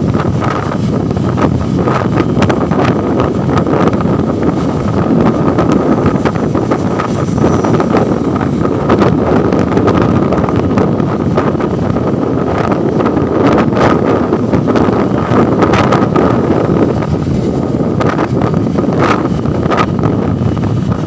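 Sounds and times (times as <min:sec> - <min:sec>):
wind buffeting microphone: 0:00.0 - 0:21.0
faint steady high tone: 0:07.2 - 0:08.4.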